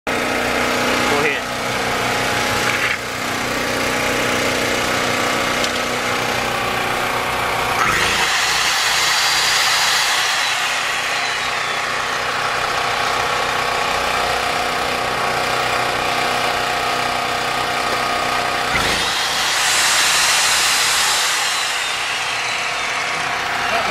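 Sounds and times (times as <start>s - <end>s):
generator engine running: 0.1s - 23.9s
high-pitched whirring: 7.8s - 13.3s, 18.7s - 23.9s.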